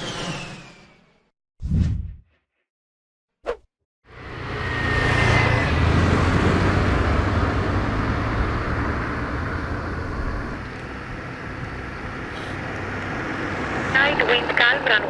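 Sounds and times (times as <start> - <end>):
jet airliner passing: 0.0 - 1.1, 4.2 - 9.3.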